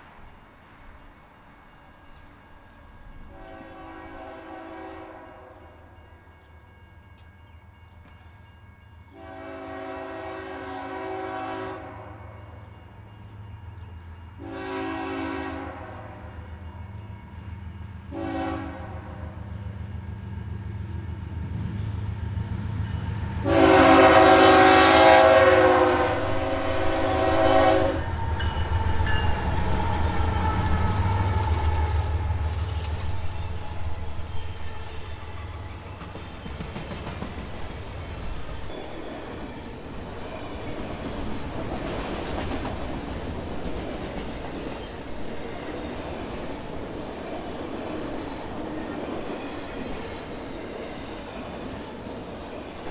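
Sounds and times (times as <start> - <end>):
rumble of passing train: 0.0 - 52.9
locomotive air horn blasts: 3.3 - 5.6, 9.1 - 12.4, 14.4 - 16.4, 18.1 - 19.4, 23.4 - 28.2.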